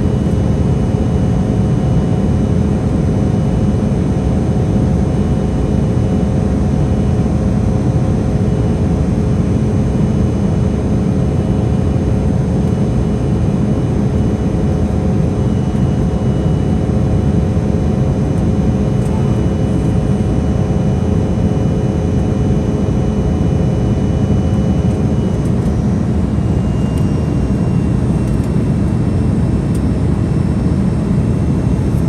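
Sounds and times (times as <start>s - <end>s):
jet cabin engine and airflow roar: 0.0s - 32.0s
faint whining tones: 10.2s - 22.2s, 22.8s - 32.0s.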